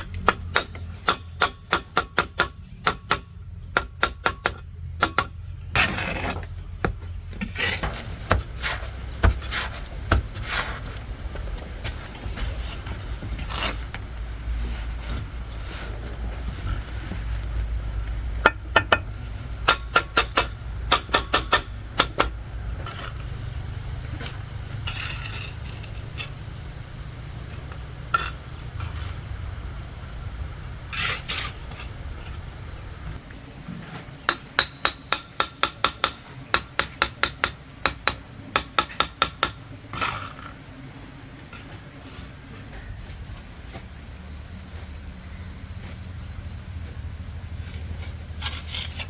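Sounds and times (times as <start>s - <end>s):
hammering blows: 17.9s - 40.1s
high-pitched insect drone: 22.6s - 33.2s.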